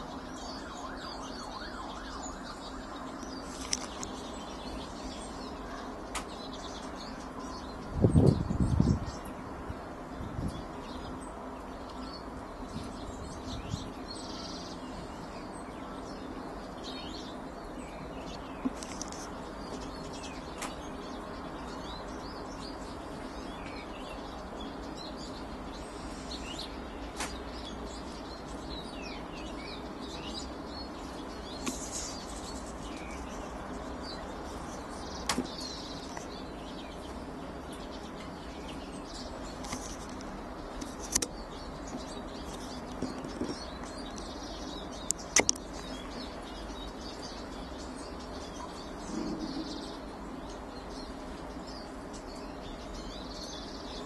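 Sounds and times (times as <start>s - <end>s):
garden birds chirping: 0.0s - 54.0s
low background noise: 0.0s - 54.0s
sharp clicks: 45.0s - 45.9s.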